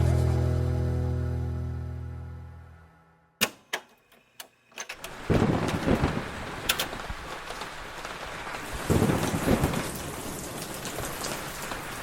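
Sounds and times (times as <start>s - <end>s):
steady rain falling: 5.0s - 12.0s
thunder rumbling: 5.1s - 12.0s.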